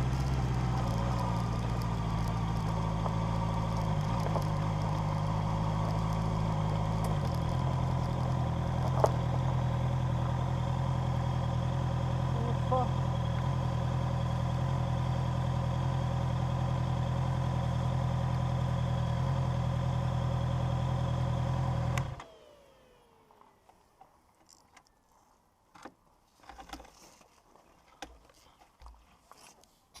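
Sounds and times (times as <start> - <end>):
car engine idling: 0.0 - 23.3
engine falling whine: 0.0 - 23.4.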